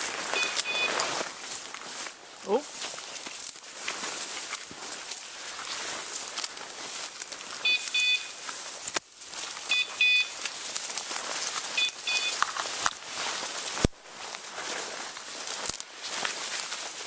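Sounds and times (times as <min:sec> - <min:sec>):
footsteps rustling brush and leaves: 0:00.0 - 0:17.0
dog collar double beeps: 0:00.4 - 0:01.0, 0:07.6 - 0:08.3, 0:09.7 - 0:10.3, 0:11.8 - 0:12.4.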